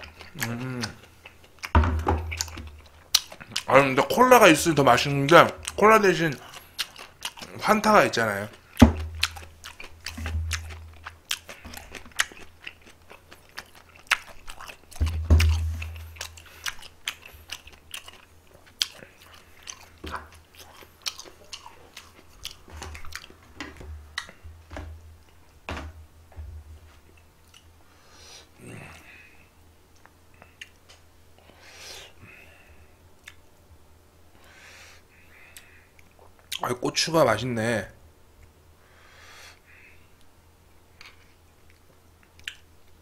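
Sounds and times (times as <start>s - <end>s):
person chewing food: 0.0s - 4.1s, 5.3s - 25.6s, 26.9s - 27.8s, 29.9s - 33.5s, 40.9s - 43.0s
dull low thumps: 1.8s - 2.6s, 10.1s - 11.0s, 15.0s - 16.2s.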